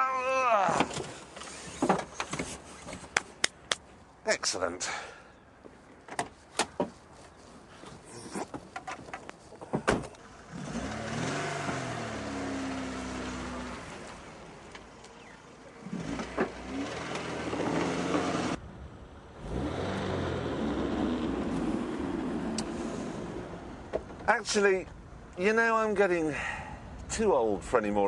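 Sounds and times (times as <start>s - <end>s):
car engine revving: 10.4s - 14.5s, 15.7s - 18.6s, 19.4s - 23.7s.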